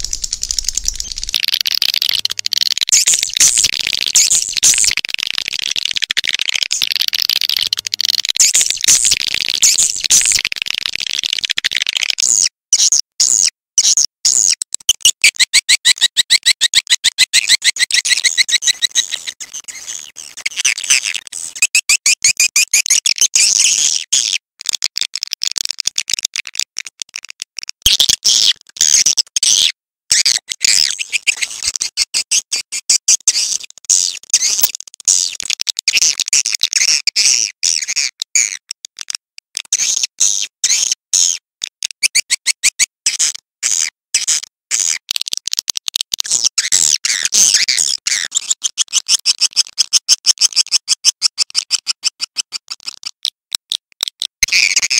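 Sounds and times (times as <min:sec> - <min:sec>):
swiftlet chirps and twitters: 0:00.0 - 0:10.5.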